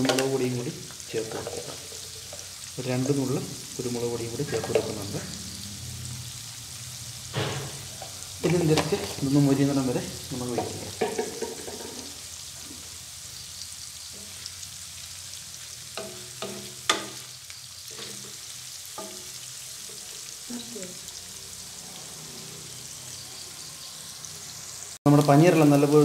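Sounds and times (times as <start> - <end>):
paneer sizzling in oil: 0.0 - 26.0
wooden spatula knocking: 10.5 - 12.0.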